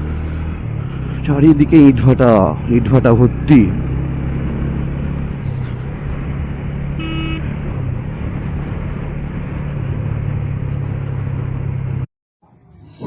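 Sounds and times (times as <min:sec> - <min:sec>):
wind and road noise: 0:00.0 - 0:13.0
vehicle horn toot: 0:07.0 - 0:07.6.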